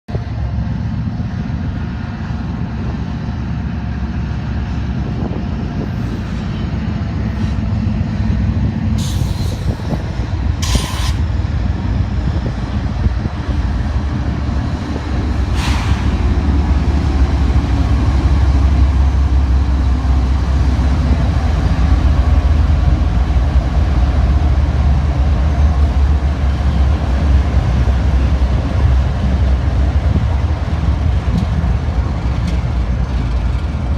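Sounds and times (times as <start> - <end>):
diesel locomotive rumbling: 0.1 - 33.9
short hisses: 10.6 - 11.2, 15.5 - 16.2.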